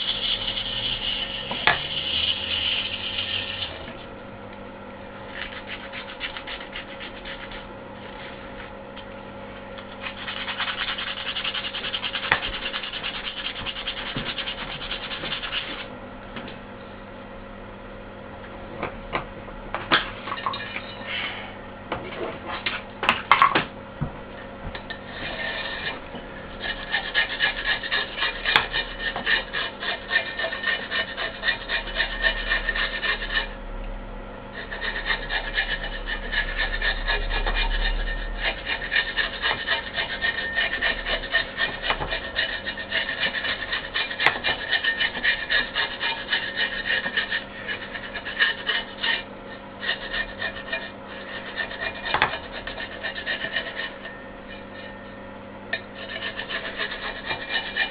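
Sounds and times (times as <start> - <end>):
faint steady hum: 0.0 - 57.9
abrasive scraping by hand: 25.0 - 33.5, 34.5 - 55.2, 55.8 - 57.9.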